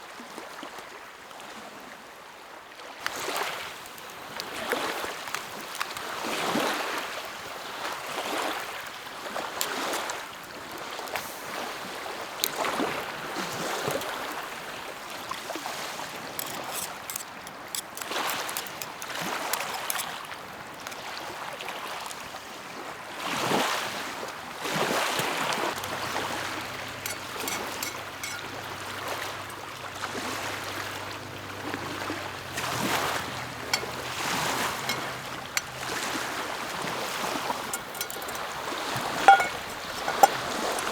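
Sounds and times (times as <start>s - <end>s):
waves lapping against shore: 3.0s - 40.9s
small crackling clicks: 3.5s - 6.2s, 16.4s - 20.2s.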